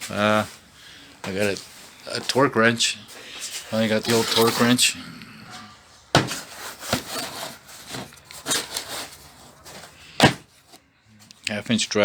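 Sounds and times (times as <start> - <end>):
tools scraping and knocking: 3.8 - 4.8, 6.2 - 10.8.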